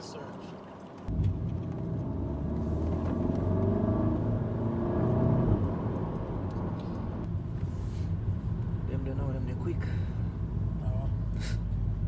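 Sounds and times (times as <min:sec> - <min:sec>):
road rumble inside car: 0:00.0 - 0:12.0
car engine revving: 0:01.1 - 0:07.3.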